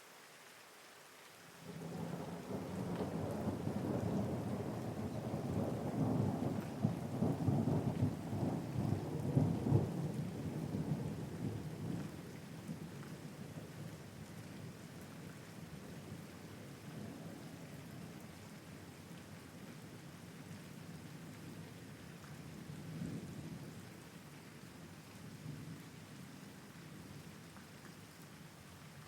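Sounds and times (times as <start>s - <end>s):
steady rain: 0.0s - 29.0s
rolling thunder: 1.7s - 11.7s.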